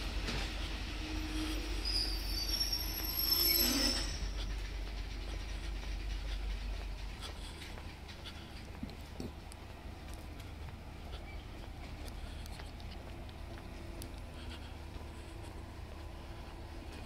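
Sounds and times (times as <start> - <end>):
low train rumble: 0.0 - 17.0
train wheels squealing: 0.3 - 7.1.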